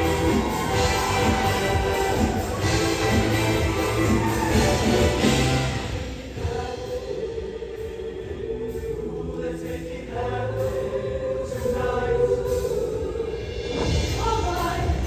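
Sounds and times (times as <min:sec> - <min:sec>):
band accompaniment: 0:00.0 - 0:06.9
choir singing held chords: 0:00.0 - 0:15.0.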